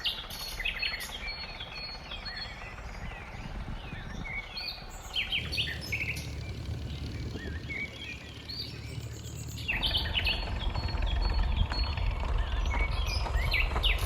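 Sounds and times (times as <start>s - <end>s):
low background rumble: 2.4s - 14.0s
birds chirping: 4.4s - 14.0s.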